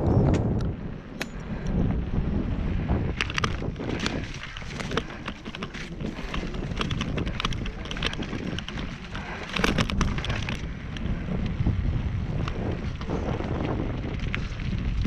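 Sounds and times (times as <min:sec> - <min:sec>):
wind buffeting microphone: 0:00.0 - 0:15.0
crackles and knocks: 0:03.0 - 0:15.0.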